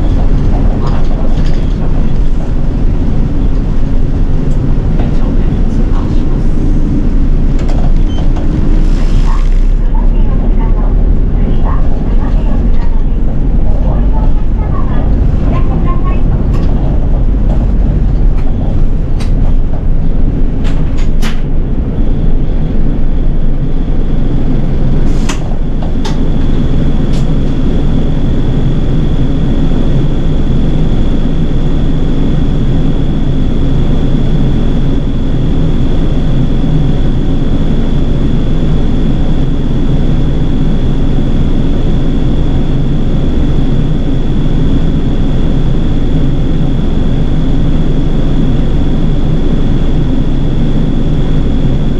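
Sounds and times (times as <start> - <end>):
bus engine and road rumble: 0.0 - 51.9.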